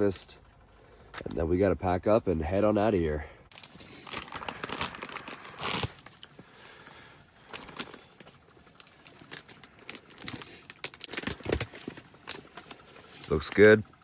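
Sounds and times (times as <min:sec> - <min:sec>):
food pouch crinkling and rustling: 0:03.5 - 0:06.7, 0:07.4 - 0:13.3.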